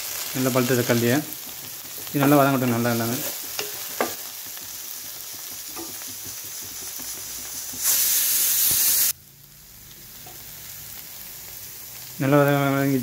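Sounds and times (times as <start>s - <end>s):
vegetables sizzling in a pan: 0.0s - 13.0s
spatula strokes: 1.8s - 9.1s
loud hiss: 7.5s - 9.2s.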